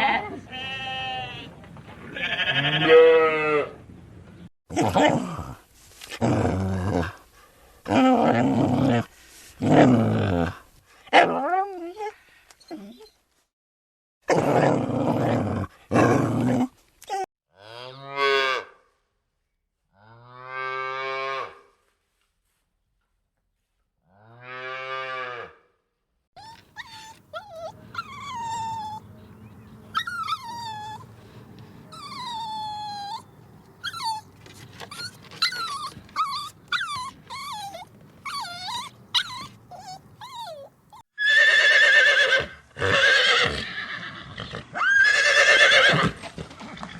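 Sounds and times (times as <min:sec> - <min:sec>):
background noise: 0:00.0 - 0:13.5, 0:14.3 - 0:46.9
cattle mooing: 0:02.2 - 0:03.8
horse whinny: 0:41.2 - 0:46.2.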